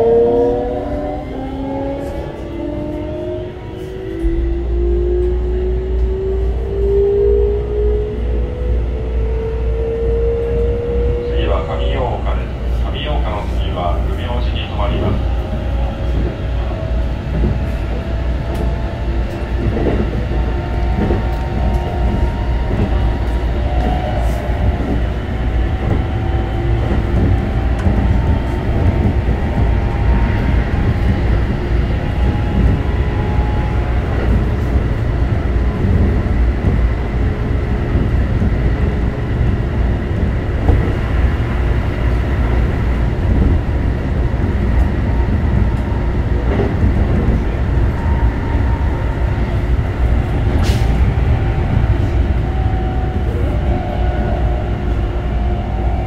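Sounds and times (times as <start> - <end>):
wheels rumbling on rail: 0.0 - 56.0.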